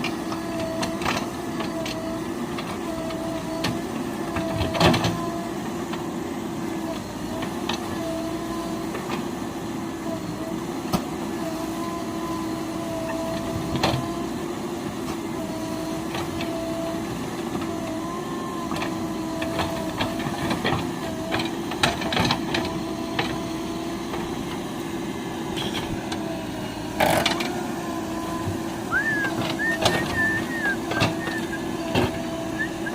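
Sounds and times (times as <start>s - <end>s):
heavy machine engine whining: 0.0s - 32.9s.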